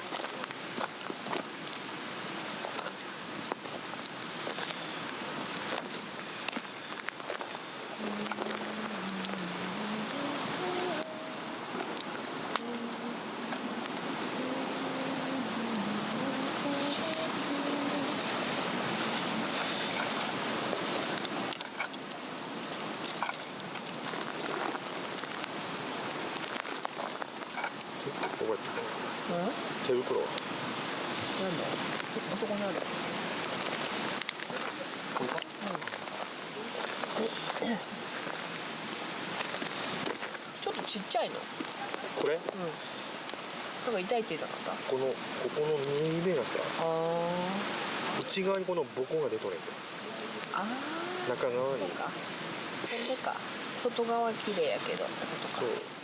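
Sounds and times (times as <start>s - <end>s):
burning log crackling: 0.0s - 56.0s
steady rushing hiss: 0.0s - 56.0s.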